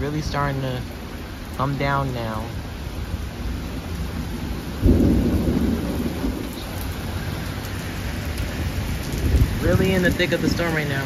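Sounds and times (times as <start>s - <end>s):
heavy rain pouring: 0.0s - 11.0s
thunder rumble: 2.4s - 11.0s.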